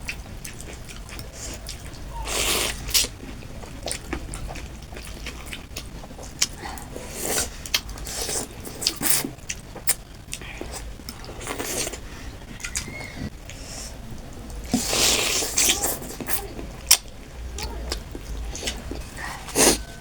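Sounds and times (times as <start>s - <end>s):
slurping noodles and broth: 2.2s - 3.1s, 6.8s - 9.4s, 14.7s - 16.4s, 18.5s - 19.9s.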